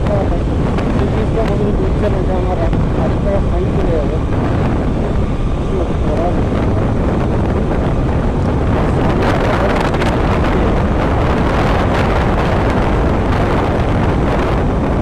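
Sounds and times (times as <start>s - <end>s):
motorcycle engine: 0.0s - 15.0s
road noise: 0.0s - 15.0s
wind rushing over microphone: 0.0s - 15.0s.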